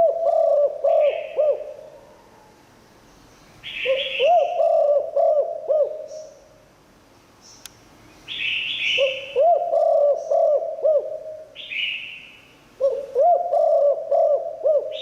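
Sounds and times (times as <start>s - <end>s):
dove cooing: 0.0s - 2.5s, 3.8s - 6.5s, 8.9s - 11.7s, 12.8s - 15.0s.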